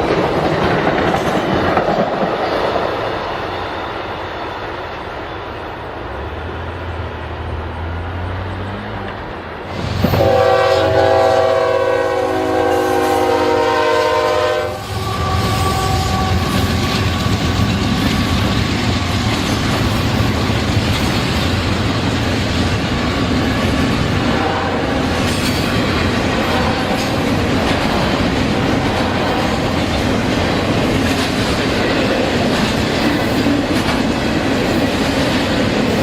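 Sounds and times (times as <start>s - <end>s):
train wheels clacking on rails: 0.0s - 5.8s, 9.7s - 36.0s
locomotive engine rumbling: 0.0s - 36.0s
train horn blast: 10.0s - 18.3s, 24.3s - 25.2s, 26.4s - 27.2s, 28.5s - 29.8s.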